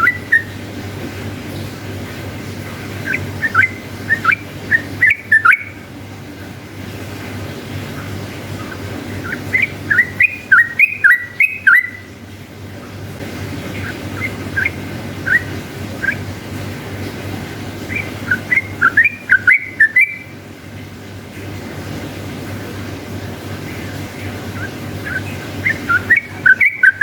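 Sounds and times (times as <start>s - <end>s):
bulbul whistled song: 0.0s - 0.6s, 3.0s - 5.8s, 8.7s - 12.1s, 13.8s - 16.2s, 17.9s - 20.3s, 24.6s - 27.0s
steady low hum: 0.0s - 27.0s.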